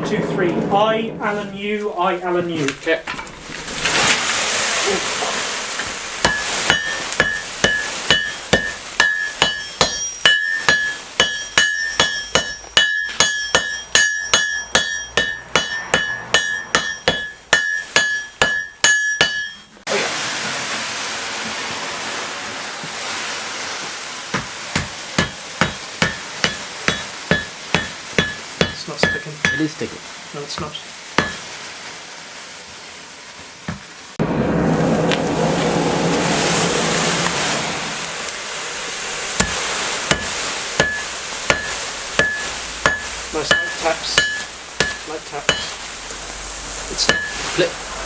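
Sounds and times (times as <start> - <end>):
steady hiss: 0.0 - 34.2, 35.0 - 48.0
hammers striking on anvil: 6.2 - 19.7, 24.4 - 29.7, 30.6 - 31.5, 39.4 - 45.8, 47.0 - 47.5.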